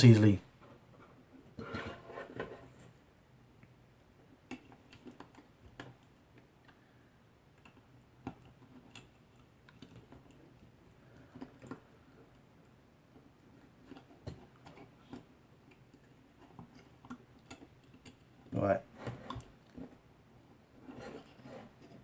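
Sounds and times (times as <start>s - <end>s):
clicks and taps of cable work: 7.5s - 12.4s.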